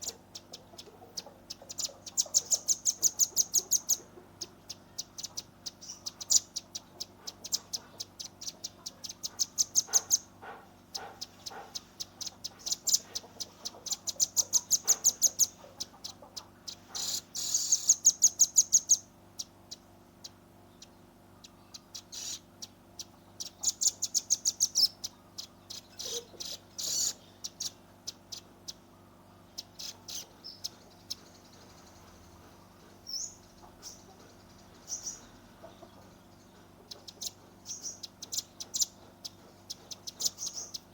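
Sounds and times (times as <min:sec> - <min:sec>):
bird rapid chipping trills: 0:00.0 - 0:40.9.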